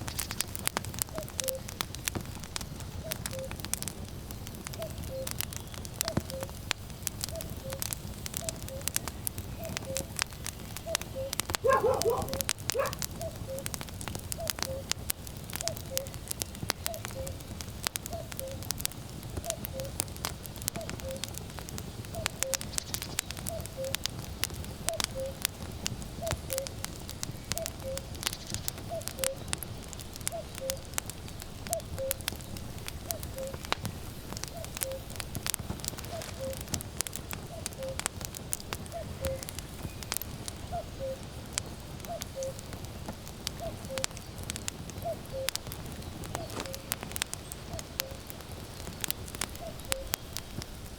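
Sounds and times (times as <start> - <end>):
firewood crackling and popping: 0.0 - 50.9
cuckoo calling: 3.0 - 3.6, 4.8 - 5.4, 7.3 - 10.1, 10.8 - 13.7, 14.4 - 14.9, 16.8 - 17.4, 18.1 - 18.6, 20.8 - 21.3, 22.2 - 22.8, 23.5 - 24.0, 24.9 - 25.4, 27.6 - 29.5, 30.3 - 30.9, 33.1 - 33.6, 34.5 - 35.1, 36.0 - 36.7, 37.5 - 38.0, 38.9 - 39.5, 40.7 - 41.2, 42.1 - 42.6, 45.0 - 45.6, 49.6 - 50.3
animal cry: 11.6 - 13.1.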